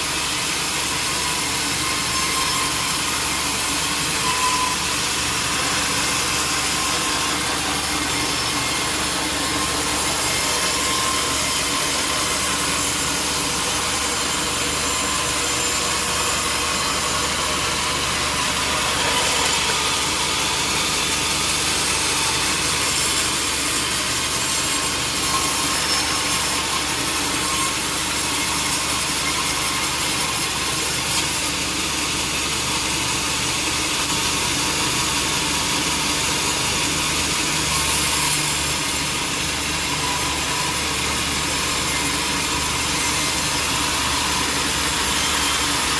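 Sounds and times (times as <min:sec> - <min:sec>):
saw blade hissing through wood: 0:00.0 - 0:31.6, 0:36.6 - 0:45.9
mill motor humming: 0:00.3 - 0:25.2.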